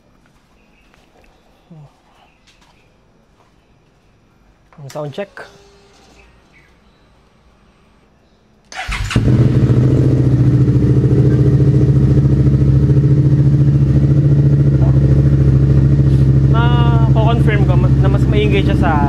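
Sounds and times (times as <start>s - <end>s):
motorcycle starter cranking: 8.7s - 12.0s
motorcycle engine idling loudly: 9.2s - 19.0s.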